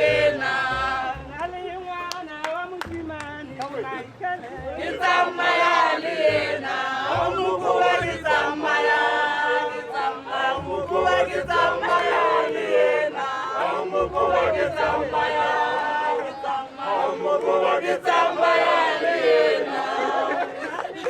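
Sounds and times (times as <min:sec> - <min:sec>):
group singing and chanting: 0:00.0 - 0:21.0.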